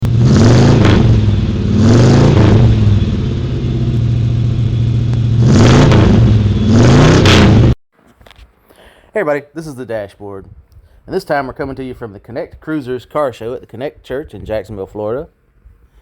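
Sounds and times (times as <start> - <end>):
car engine idling and revving: 0.0 - 7.8.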